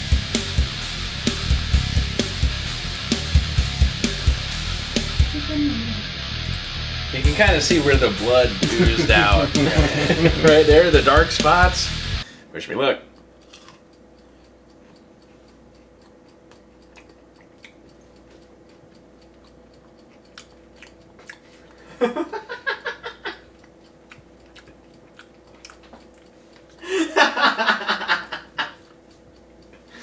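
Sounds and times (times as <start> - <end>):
man chewing: 13.2 - 26.9, 28.6 - 30.0
wet mouth clicks: 15.7 - 21.8, 23.6 - 26.8.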